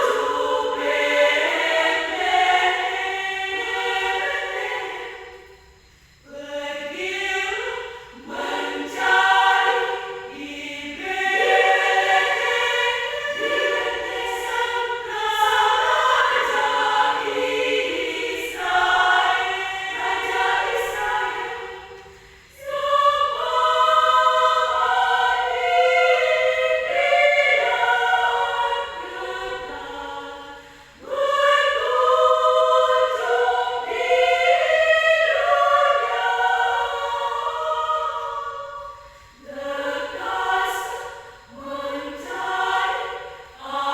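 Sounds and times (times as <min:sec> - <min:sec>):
women's choir singing: 0:00.0 - 0:43.9
singers breathing: 0:30.6 - 0:31.0.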